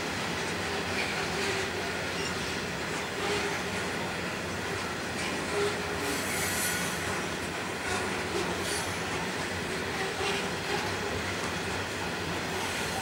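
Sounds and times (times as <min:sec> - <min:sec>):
coal train rolling along track: 0:00.0 - 0:13.0.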